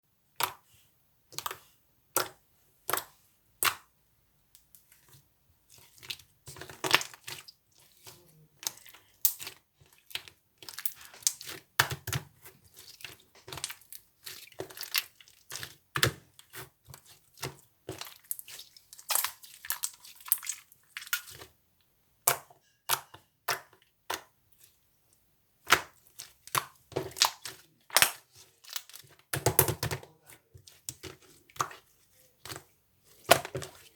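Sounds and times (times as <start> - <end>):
hand mixing crackles and clicks: 0.3 - 0.7, 1.3 - 3.9, 4.5 - 33.9.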